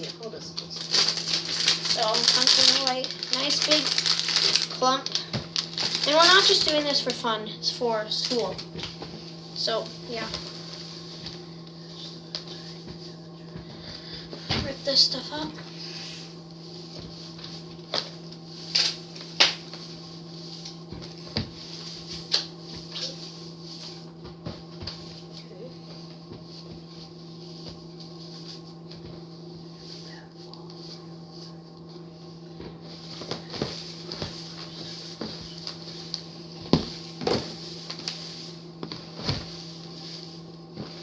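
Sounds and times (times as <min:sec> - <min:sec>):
low electrical hum: 0:00.0 - 0:41.0.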